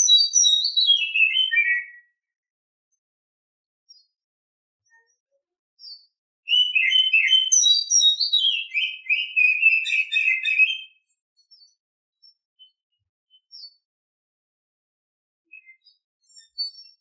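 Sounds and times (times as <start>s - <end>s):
bird singing whistles and chirps: 0.0s - 2.3s, 5.8s - 13.8s, 15.5s - 17.0s.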